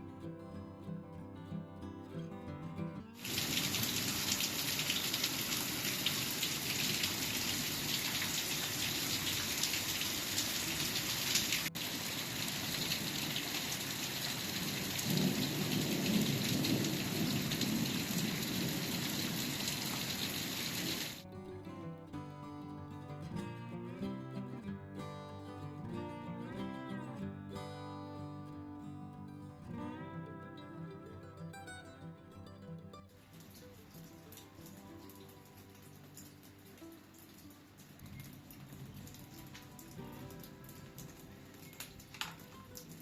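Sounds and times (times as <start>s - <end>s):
heavy rain falling: 3.2s - 21.2s, 33.3s - 43.0s.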